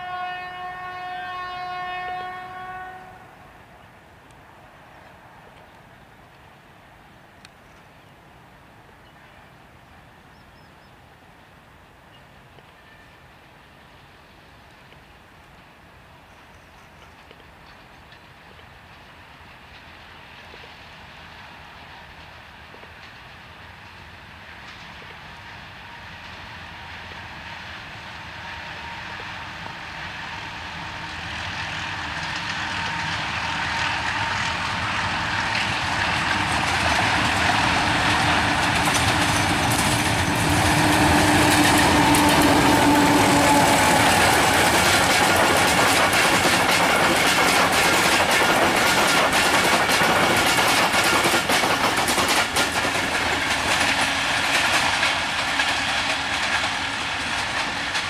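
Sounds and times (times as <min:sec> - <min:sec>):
diesel locomotive engine: 0:00.0 - 0:58.0
train wheels clickety-clack: 0:16.3 - 0:58.0.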